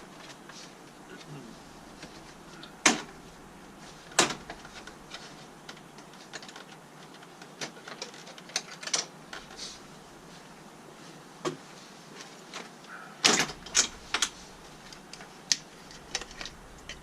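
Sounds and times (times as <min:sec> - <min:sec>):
plastic clips clicking and snapping: 0:04.1 - 0:09.6, 0:12.5 - 0:17.0.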